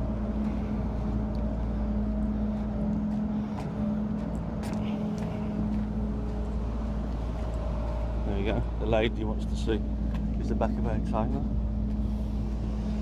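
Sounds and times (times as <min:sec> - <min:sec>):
refrigeration unit droning: 0:00.0 - 0:13.0.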